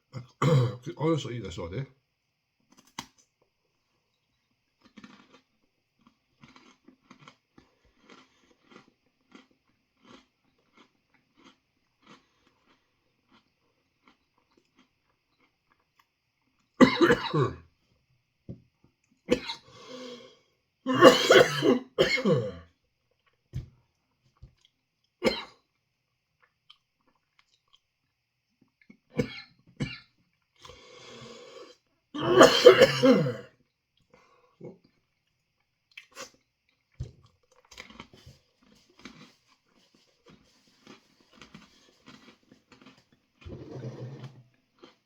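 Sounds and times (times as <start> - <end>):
throat clearing: 0.1 - 0.8, 20.9 - 22.7, 32.2 - 33.5
man coughing: 0.2 - 0.9, 16.8 - 17.6, 20.9 - 22.6, 25.3 - 25.5, 32.2 - 33.5.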